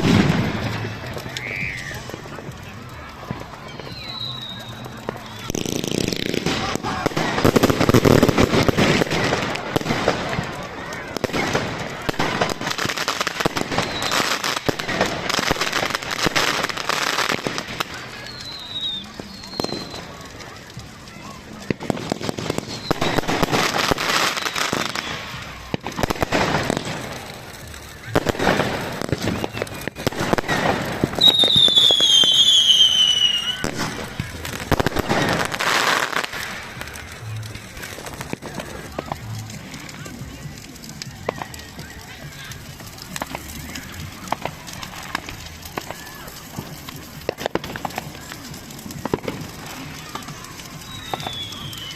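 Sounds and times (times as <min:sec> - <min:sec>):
fireworks bangs and pops: 0:00.0 - 0:51.9
fireworks crackling: 0:00.0 - 0:51.9.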